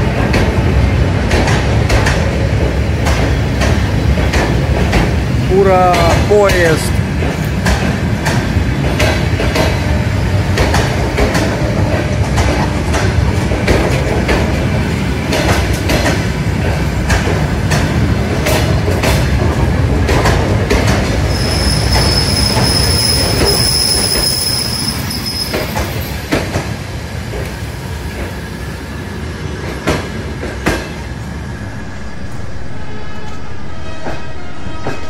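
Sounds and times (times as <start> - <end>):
train wheels clacking over joints: 0.1 - 28.4
high wheel squeal: 21.3 - 26.2.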